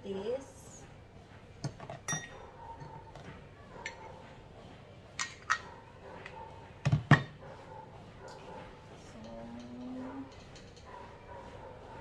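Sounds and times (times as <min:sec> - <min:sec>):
utensils clinking: 0:01.6 - 0:04.2, 0:05.2 - 0:05.8, 0:09.1 - 0:11.0.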